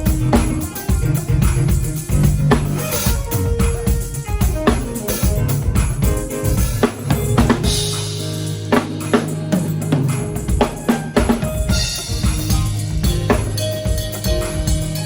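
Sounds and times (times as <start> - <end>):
bass drum and snare hits: 0.0 - 9.3, 9.9 - 15.0
sustained low bass notes: 12.0 - 15.0.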